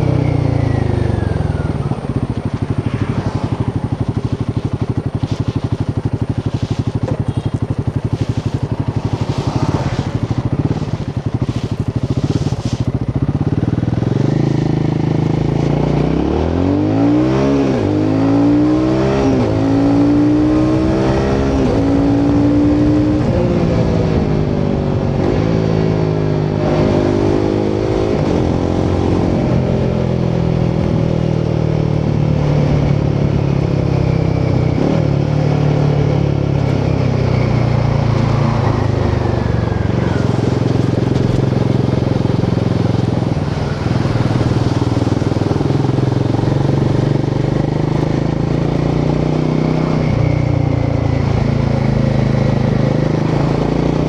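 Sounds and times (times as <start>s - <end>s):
constant rushing noise: 0.0s - 16.6s, 20.8s - 54.0s
motorcycle engine and exhaust: 0.0s - 54.0s.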